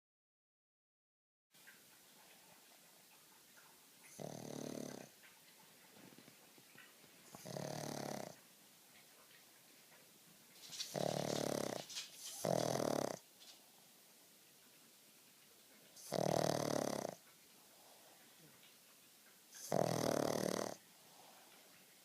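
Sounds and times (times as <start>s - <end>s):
dog snoring: 4.1s - 5.2s, 7.3s - 8.4s, 10.8s - 13.2s, 16.0s - 17.2s, 19.5s - 21.6s.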